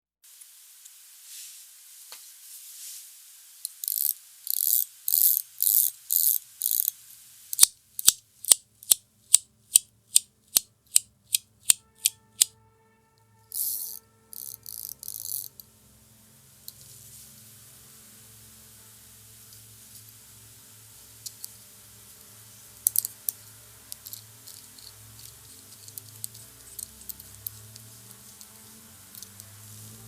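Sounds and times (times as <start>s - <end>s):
metal fidget toy clicking: 3.7s - 7.0s, 7.6s - 12.5s, 13.5s - 15.5s, 22.8s - 29.4s.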